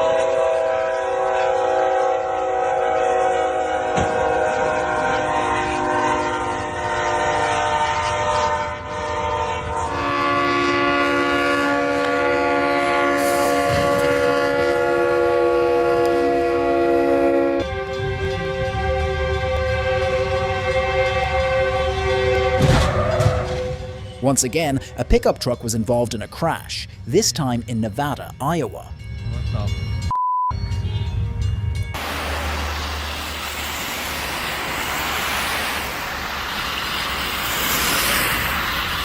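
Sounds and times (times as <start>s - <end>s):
train horn: 0.0s - 24.2s.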